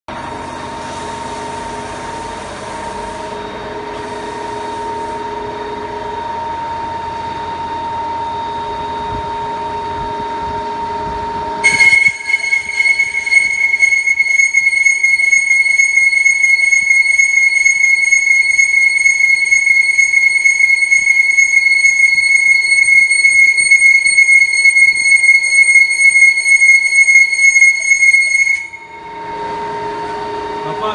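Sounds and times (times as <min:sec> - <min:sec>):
cutter squealing on pipe: 0:11.6 - 0:29.1.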